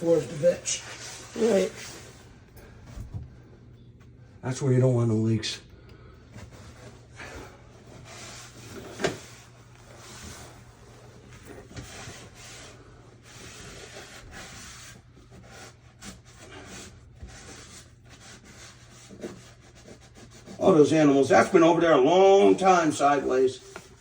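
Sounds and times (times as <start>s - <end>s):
hands and tools scraping: 0.0s - 2.7s.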